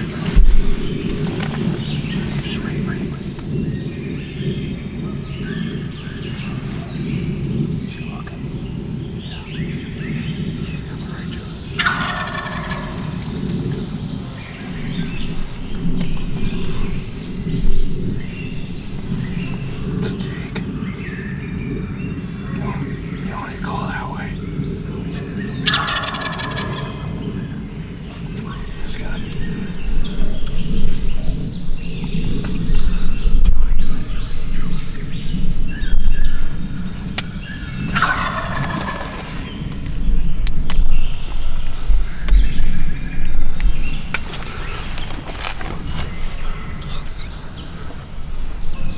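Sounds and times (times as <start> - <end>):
low rumble: 0.0 - 23.6
birds chirping: 0.0 - 48.9
steady low rumble: 0.0 - 48.9
turkey gobbling: 11.3 - 24.2, 24.9 - 48.9.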